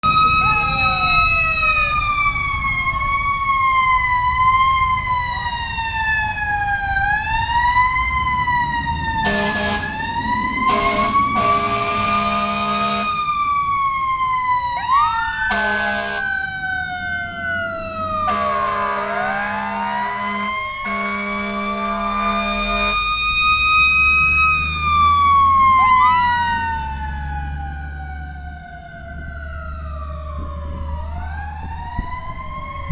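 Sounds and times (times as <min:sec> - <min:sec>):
diesel engine rumble: 0:00.0 - 0:32.9
mechanical siren wailing: 0:00.0 - 0:32.9
siren sweep: 0:00.0 - 0:32.9
air horn blasts: 0:09.2 - 0:10.0, 0:10.6 - 0:13.2, 0:15.5 - 0:16.3, 0:18.2 - 0:23.1.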